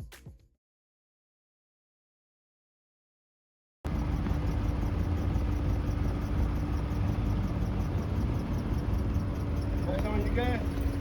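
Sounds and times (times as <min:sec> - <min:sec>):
car rumble inside cabin: 0:03.9 - 0:11.0.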